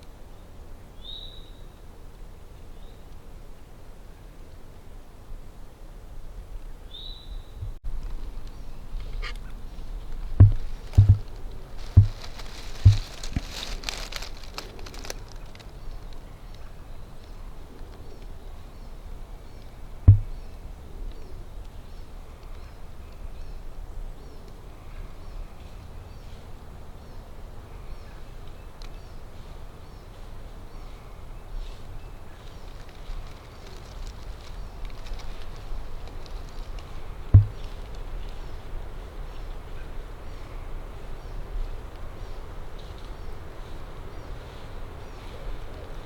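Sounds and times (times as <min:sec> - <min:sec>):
distant birdsong: 0:06.6 - 0:46.0
dull low thump: 0:07.6 - 0:07.8, 0:10.3 - 0:13.5, 0:20.0 - 0:20.4, 0:37.3 - 0:37.7
steady low rumble: 0:07.6 - 0:14.9, 0:19.0 - 0:23.8.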